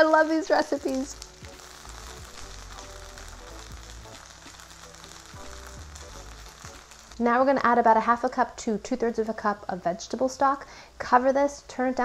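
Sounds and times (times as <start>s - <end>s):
food sizzling in oil: 0.0s - 8.6s
light background music: 0.0s - 12.0s.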